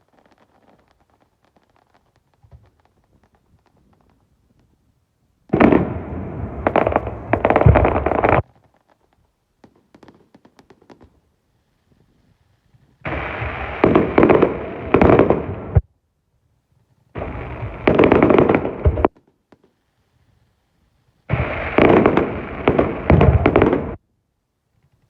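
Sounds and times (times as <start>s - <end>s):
fireworks bangs and crackling: 0.0s - 4.8s, 5.5s - 12.1s, 12.7s - 15.9s, 17.2s - 19.8s, 21.3s - 24.0s.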